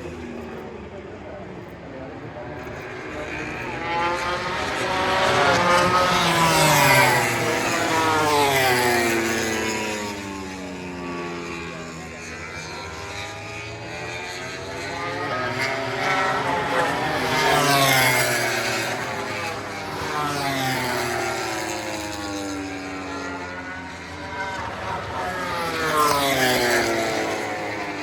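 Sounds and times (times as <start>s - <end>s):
racing motorcycles passing: 0.0s - 28.0s.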